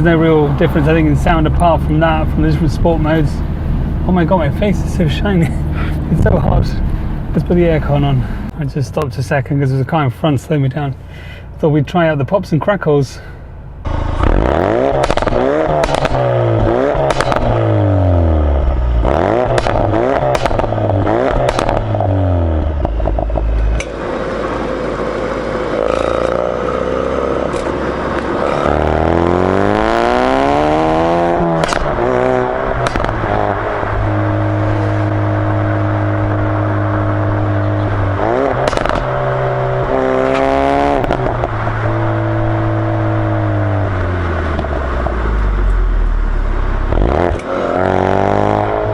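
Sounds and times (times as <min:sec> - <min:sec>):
car engine revving: 0:00.0 - 0:08.5, 0:13.8 - 0:48.9
exhaust pops and crackles: 0:14.2 - 0:17.8, 0:19.4 - 0:24.0, 0:31.3 - 0:34.2, 0:35.8 - 0:45.8.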